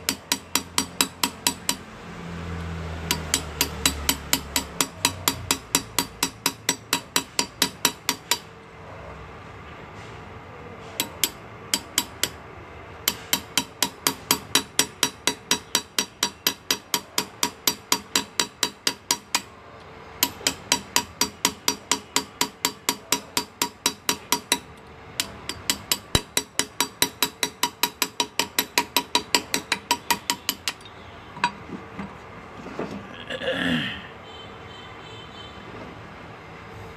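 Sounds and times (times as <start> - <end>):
hammer tapping graver through metal: 0.0 - 1.9, 3.0 - 8.5, 10.9 - 12.4, 13.0 - 19.5, 20.2 - 32.2.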